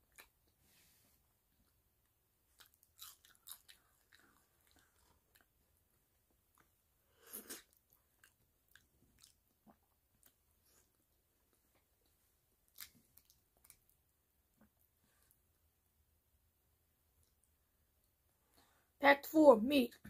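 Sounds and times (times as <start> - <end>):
chewing crisp food: 0.0 - 0.4, 2.0 - 14.0.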